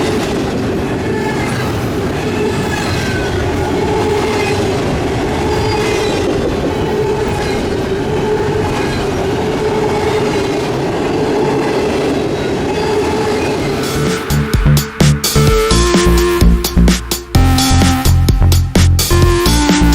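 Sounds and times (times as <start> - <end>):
train cars rumbling past: 0.0 - 19.6
steady tone: 13.7 - 19.9.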